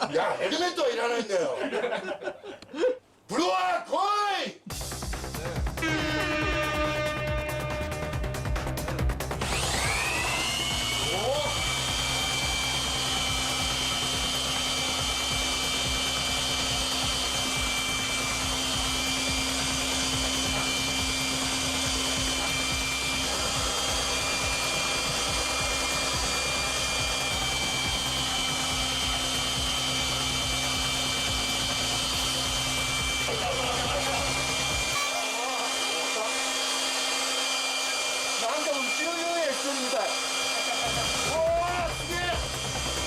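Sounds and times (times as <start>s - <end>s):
electric air blower running: 4.7s - 43.0s.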